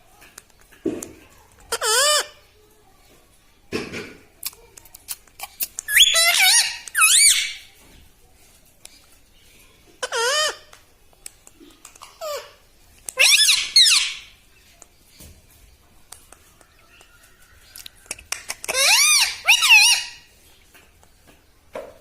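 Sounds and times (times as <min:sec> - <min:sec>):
faint clicks: 0:00.1 - 0:01.7, 0:10.7 - 0:12.2, 0:15.8 - 0:18.8
parrot shrill wavering calls: 0:01.8 - 0:02.3, 0:05.9 - 0:07.7, 0:13.2 - 0:14.3, 0:18.7 - 0:20.3.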